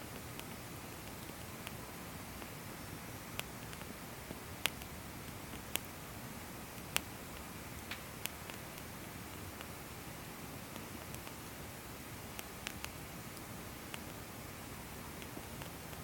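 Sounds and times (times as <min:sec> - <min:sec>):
faint steady hiss: 0:00.0 - 0:16.0
firewood crackling and popping: 0:06.8 - 0:09.8.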